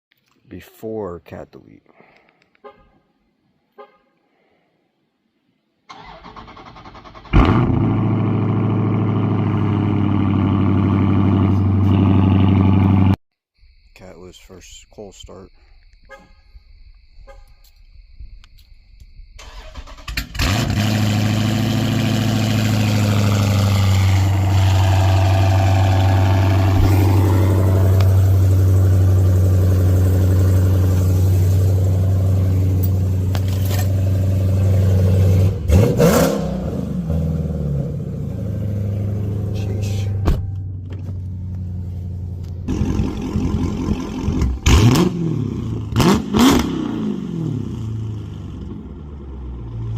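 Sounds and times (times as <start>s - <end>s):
engine cold start: 5.9s - 8.2s, 19.4s - 21.7s
engine loud fast idle: 19.4s - 33.2s
engine throttle blips: 19.4s - 49.9s.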